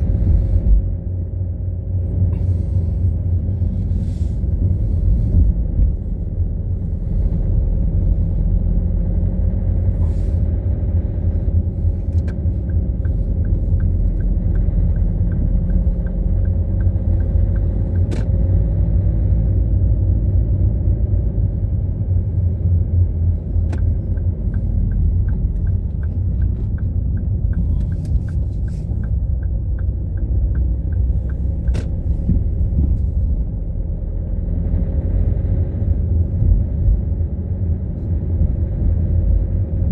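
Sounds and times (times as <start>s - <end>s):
car road and engine rumble: 0.0s - 39.9s
turn signal ticking: 10.4s - 18.6s, 23.2s - 34.1s.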